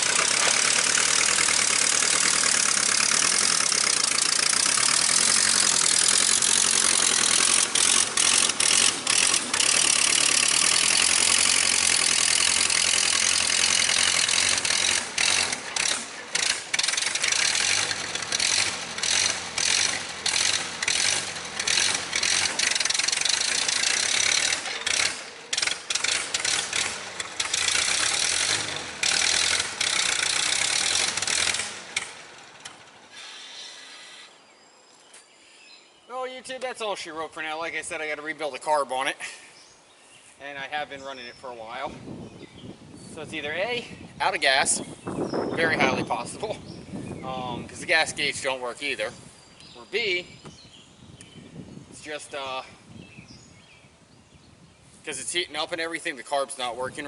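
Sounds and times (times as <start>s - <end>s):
tractor engine running: 0.0s - 33.4s.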